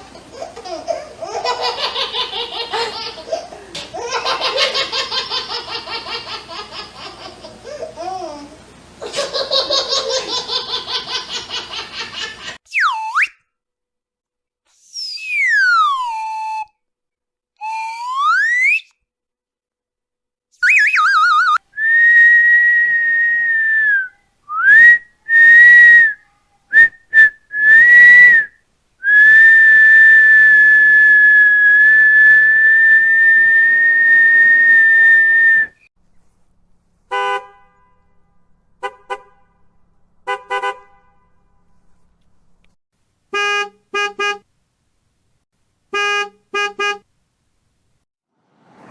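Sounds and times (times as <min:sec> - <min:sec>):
warbling whistle trill: 0:12.7 - 0:13.4, 0:14.8 - 0:16.7, 0:17.6 - 0:18.9, 0:20.6 - 0:26.2, 0:26.8 - 0:35.8
whistle blasts: 0:12.7 - 0:13.4, 0:14.8 - 0:16.7, 0:17.6 - 0:18.9, 0:20.6 - 0:26.2, 0:26.8 - 0:35.8
sliding whistle: 0:12.7 - 0:13.5, 0:14.7 - 0:16.8, 0:17.6 - 0:19.0, 0:20.6 - 0:35.8.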